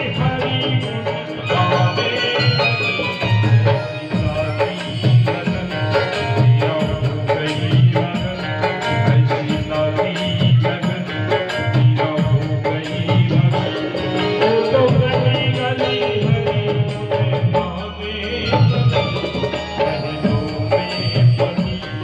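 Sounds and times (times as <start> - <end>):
sustained melodic tones: 13.5 - 16.4.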